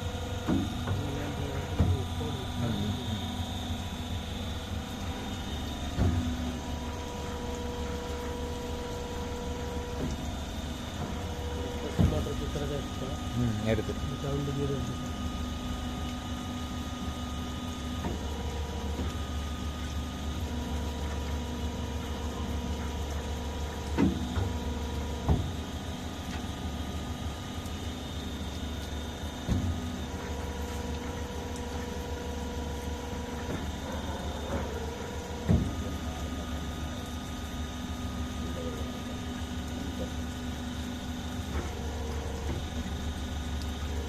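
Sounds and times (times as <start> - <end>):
machine low hum: 0.0 - 44.0
motor whine: 0.0 - 44.0.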